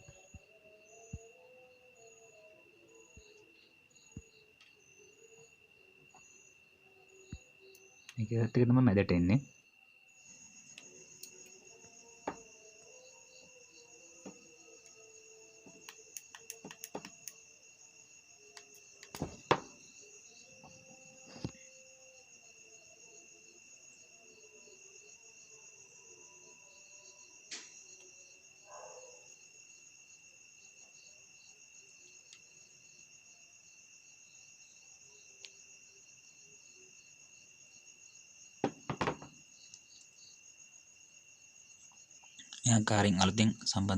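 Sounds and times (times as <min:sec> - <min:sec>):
crickets chirring: 0:00.0 - 0:43.9
small parts clicking and knocking: 0:15.6 - 0:17.4.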